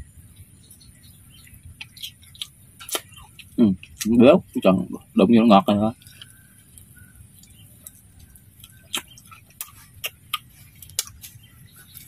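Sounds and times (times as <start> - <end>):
person chewing: 1.4 - 4.1, 5.9 - 12.0
mouth clicks and smacks: 1.4 - 4.2, 6.0 - 12.0.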